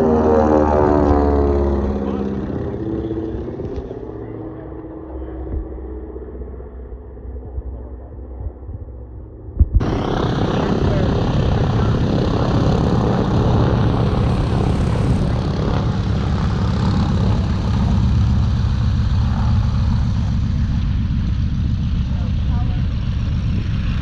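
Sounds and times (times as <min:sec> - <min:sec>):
propeller airplane engines running: 0:00.0 - 0:24.0.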